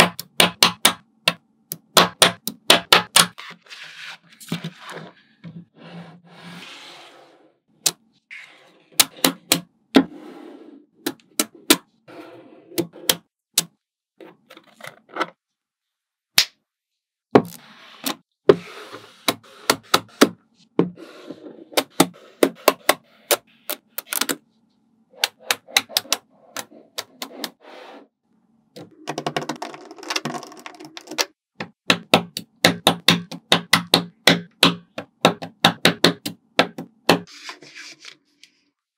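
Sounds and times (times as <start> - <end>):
balls rattling: 28.9 - 31.3.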